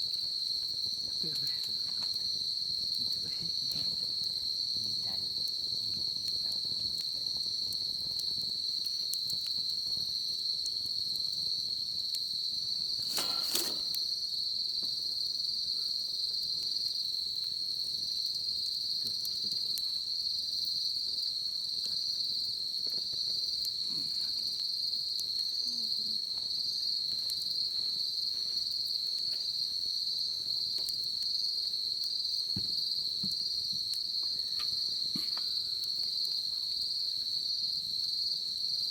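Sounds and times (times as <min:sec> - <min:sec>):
bonfire wood crackling: 0:00.0 - 0:38.9
crickets chirping: 0:00.0 - 0:38.9
loud snap: 0:13.1 - 0:14.0.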